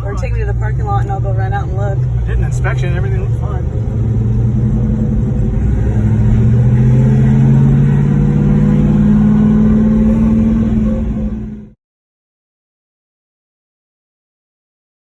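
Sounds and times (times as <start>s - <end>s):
car engine running: 0.0s - 11.8s
road noise rumble: 0.0s - 11.8s.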